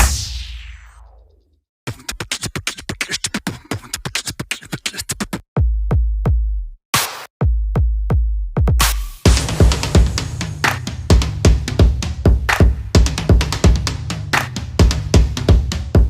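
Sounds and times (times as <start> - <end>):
drum machine beats: 0.0 - 0.4, 5.6 - 16.0
deep bass notes with hits: 9.3 - 16.0.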